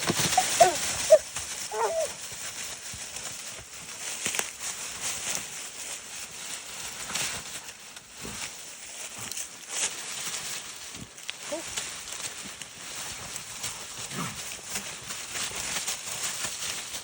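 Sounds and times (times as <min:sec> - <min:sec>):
rustling and crackling: 0:00.0 - 0:17.0
dog yelping: 0:00.2 - 0:02.2.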